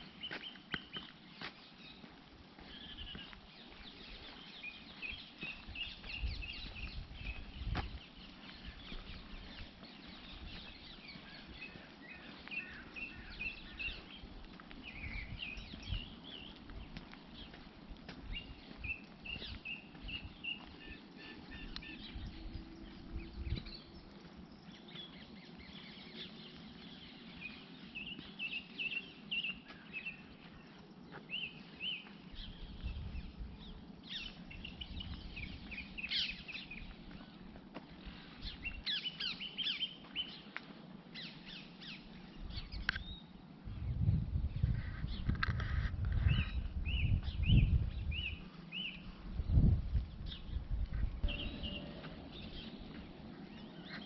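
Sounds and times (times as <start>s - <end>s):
songbirds chirping and singing: 0.0s - 54.0s
low rumble: 43.6s - 53.8s.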